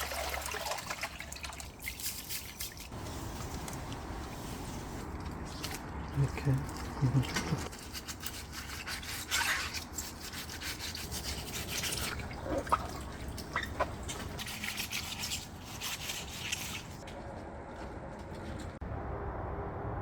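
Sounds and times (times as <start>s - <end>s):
water dripping: 11.7s - 15.4s.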